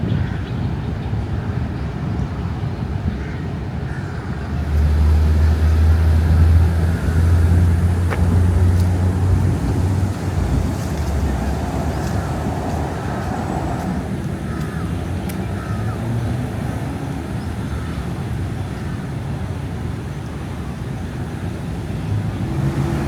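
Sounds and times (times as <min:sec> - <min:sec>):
road traffic rumble: 0:02.6 - 0:23.0
vehicle passing by: 0:04.3 - 0:17.3, 0:22.0 - 0:23.0.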